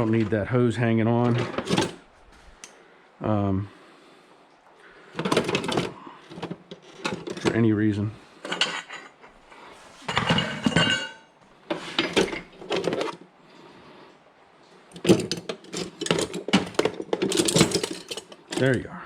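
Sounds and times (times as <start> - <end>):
hand tools clanking on metal: 8.4 - 9.3, 10.1 - 13.1, 15.0 - 18.8.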